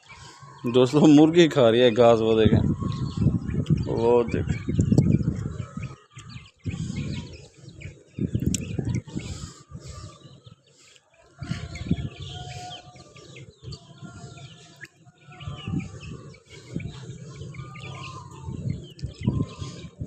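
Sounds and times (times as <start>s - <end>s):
small birds chirping: 0.0s - 20.0s
low rumbles on microphone: 2.4s - 7.4s, 8.2s - 10.0s, 15.4s - 20.0s.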